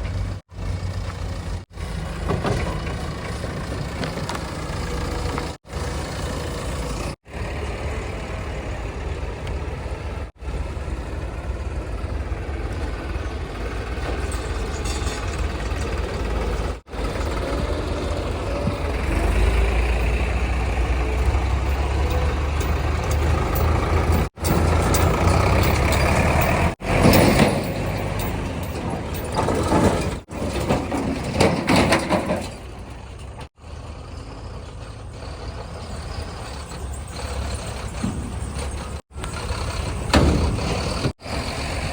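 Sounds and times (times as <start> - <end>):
heavy diesel engines running: 0.0 - 41.9
rough engine bursts: 10.2 - 41.9.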